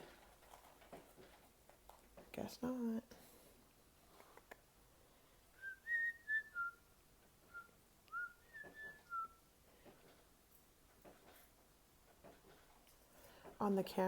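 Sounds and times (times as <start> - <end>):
whistled tune: 5.6 - 6.9, 7.5 - 9.5.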